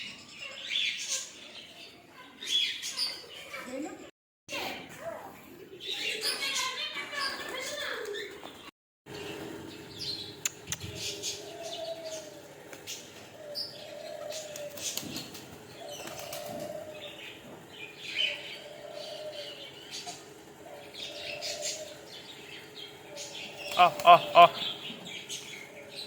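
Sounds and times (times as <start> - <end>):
small birds chirping: 0.0 - 4.0, 4.6 - 26.0
doves cooing: 10.6 - 26.0
wings flapping: 23.7 - 24.5.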